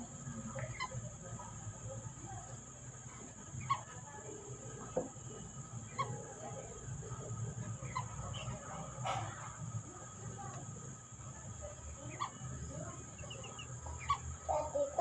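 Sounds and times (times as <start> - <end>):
ducks giving squeaky calls: 0.6 - 1.0, 7.8 - 8.6, 12.1 - 12.5, 13.2 - 15.0.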